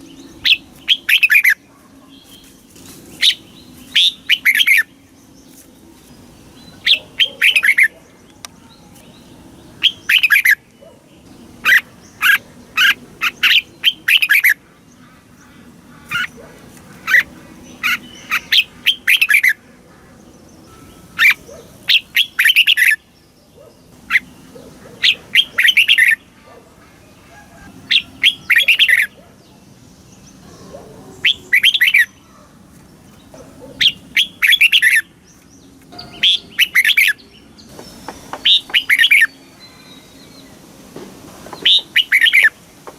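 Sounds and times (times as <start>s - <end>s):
bird singing whistled notes: 9.8s - 10.6s, 20.6s - 23.0s, 27.9s - 29.1s, 31.2s - 32.2s, 36.0s - 40.6s, 41.6s - 42.6s.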